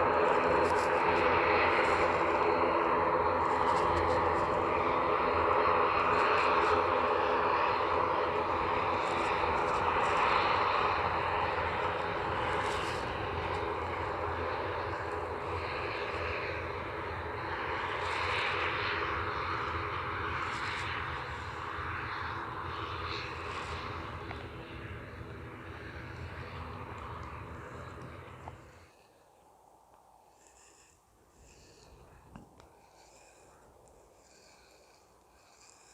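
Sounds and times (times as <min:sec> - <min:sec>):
airliner engines running: 0:00.0 - 0:35.9.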